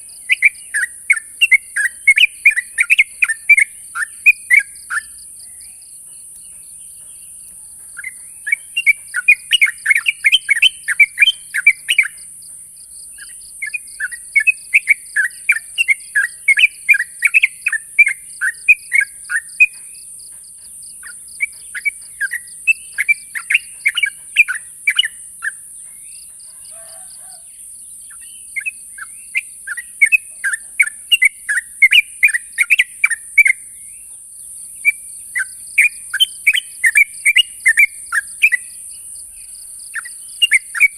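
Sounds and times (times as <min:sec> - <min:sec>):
bird chattering call: 0:00.0 - 0:27.4, 0:28.1 - 0:33.7, 0:34.8 - 0:38.9, 0:39.6 - 0:40.9.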